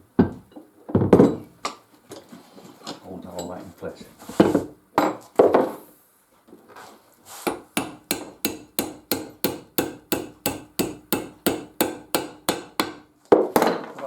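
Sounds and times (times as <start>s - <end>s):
hammer knocking metal pin: 7.5s - 13.0s.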